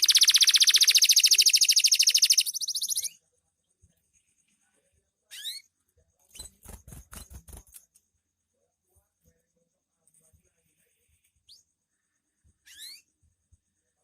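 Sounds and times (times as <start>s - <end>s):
canary trilling: 0.0s - 3.2s, 12.6s - 13.0s.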